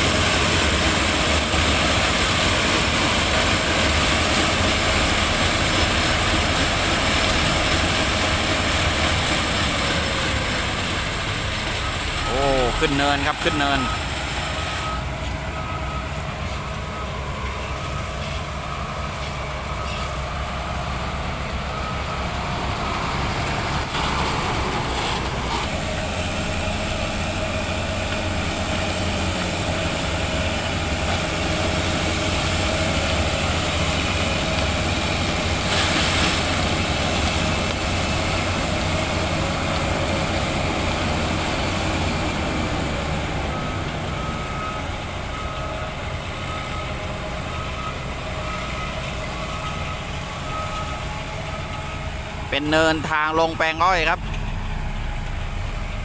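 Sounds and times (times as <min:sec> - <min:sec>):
heavy diesel engine running: 0:00.0 - 0:56.0
faint beep: 0:12.2 - 0:14.1.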